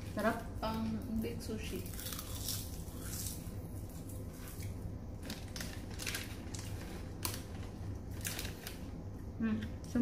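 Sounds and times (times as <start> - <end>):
crunchy seaweed being chewed: 1.8 - 8.9.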